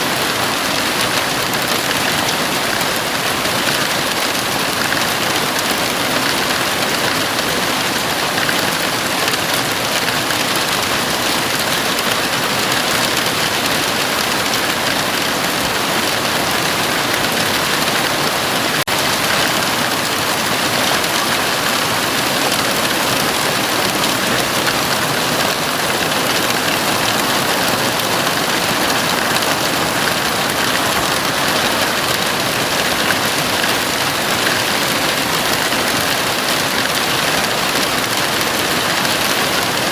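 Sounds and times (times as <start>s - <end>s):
heavy rain on a roof: 0.0s - 39.9s.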